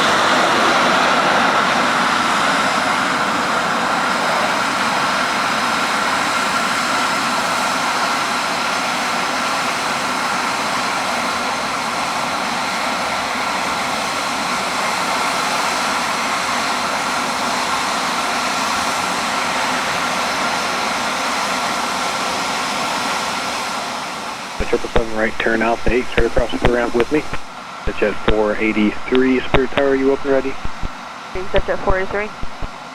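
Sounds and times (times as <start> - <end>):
jet engines whining: 23.6 - 32.9.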